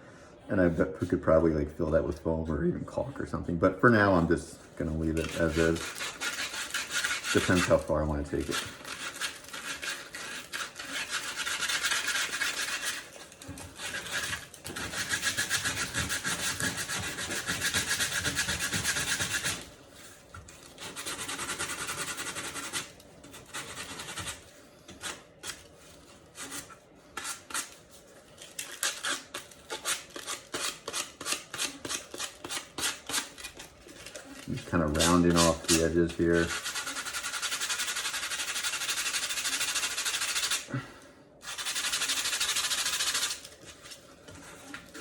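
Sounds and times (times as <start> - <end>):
sandpaper rubbing on foam: 5.1 - 19.7, 20.7 - 25.6, 34.4 - 40.7, 41.4 - 43.5.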